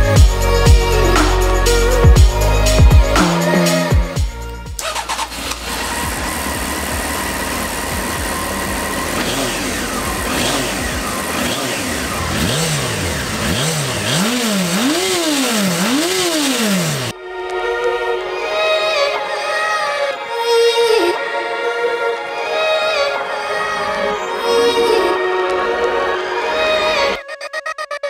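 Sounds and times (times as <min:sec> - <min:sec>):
motorcycle engine revving: 0:00.0 - 0:17.2.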